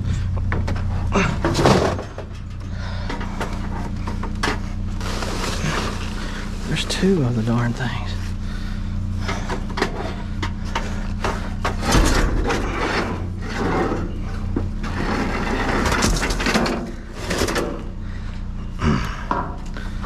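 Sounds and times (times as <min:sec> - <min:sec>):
junk knocking and rattling in dumpster: 0:00.0 - 0:06.4, 0:09.2 - 0:18.1
steady low hum: 0:00.0 - 0:20.0.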